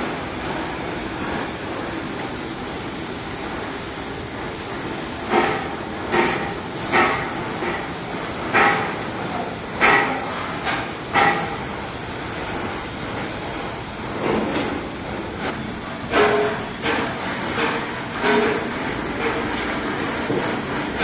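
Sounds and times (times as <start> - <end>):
hammer striking sheet metal: 5.3 - 11.7, 15.5 - 21.0.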